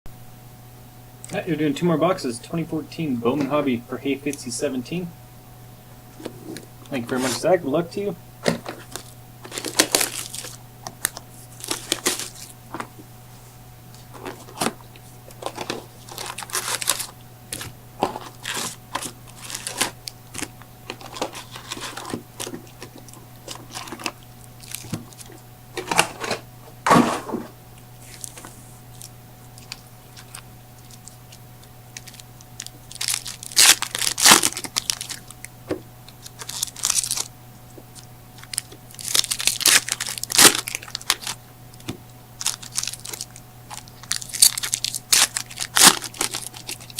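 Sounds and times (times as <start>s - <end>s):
wrappers tearing and crinkling: 8.4s - 12.9s, 14.0s - 26.4s, 28.0s - 37.3s, 37.9s - 46.9s.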